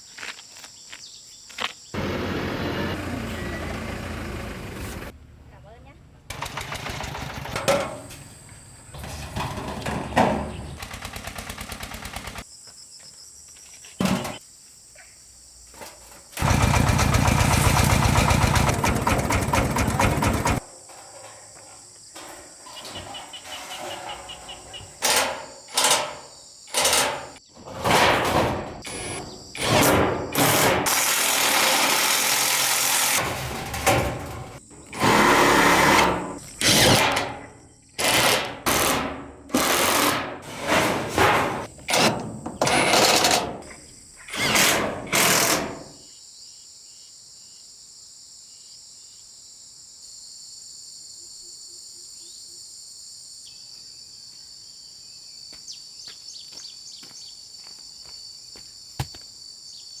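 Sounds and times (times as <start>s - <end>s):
insects chirping: 0.0s - 2.0s, 6.9s - 31.0s, 33.1s - 60.0s
power tool bursts: 6.3s - 7.8s, 16.4s - 20.6s, 28.8s - 37.4s, 38.0s - 46.0s.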